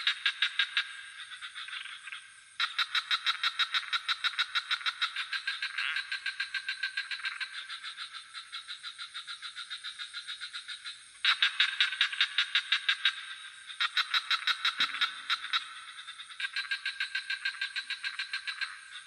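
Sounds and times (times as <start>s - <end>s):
frogs calling in pulsed trills: 0.0s - 19.0s
high-pitched insect trill: 0.0s - 19.0s.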